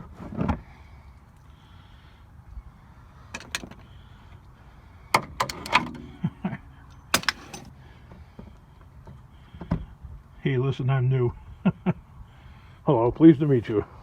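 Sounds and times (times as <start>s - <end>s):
tools knocking and clicking: 3.4s - 3.8s, 5.2s - 6.2s, 7.1s - 7.7s.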